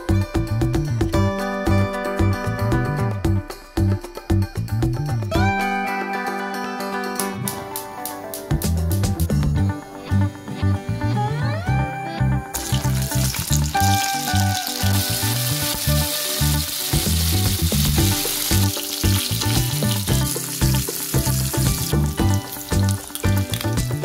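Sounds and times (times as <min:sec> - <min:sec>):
background music: 0:00.0 - 0:24.0
chicken sizzling in hot oil: 0:12.6 - 0:24.0.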